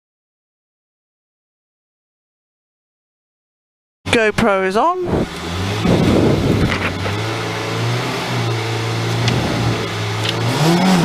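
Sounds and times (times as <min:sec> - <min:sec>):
car engine running: 0:04.1 - 0:11.0.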